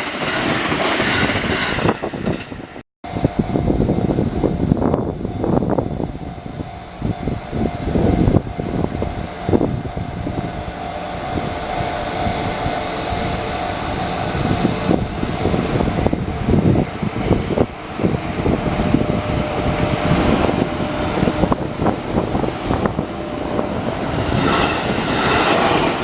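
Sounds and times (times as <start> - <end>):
train rumbling: 0.0 - 26.0
crossing warning bell ringing: 3.1 - 26.0.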